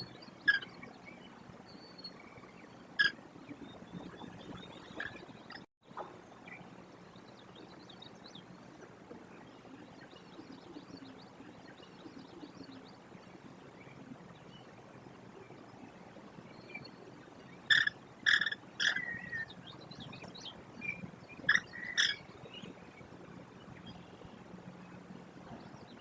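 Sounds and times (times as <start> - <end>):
faint bird chirps: 15.4 - 26.0
kestrel sharp calls: 17.7 - 19.5, 20.9 - 22.2.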